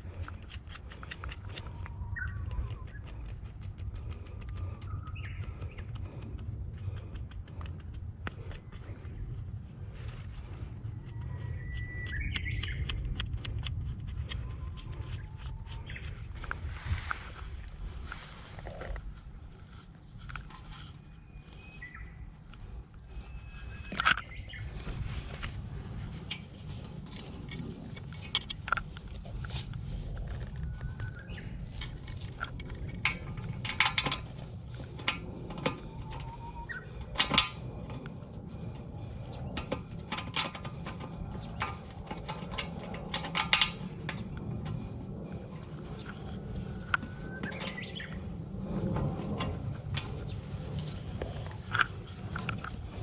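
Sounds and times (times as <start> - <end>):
steady low rumble: 0.0 - 53.0
bird chirps: 1.8 - 3.1, 4.8 - 5.9, 11.0 - 13.0, 21.1 - 22.3, 23.2 - 24.8, 36.1 - 37.0, 47.0 - 48.3
sharp metallic clicks and knocks: 26.2 - 53.0.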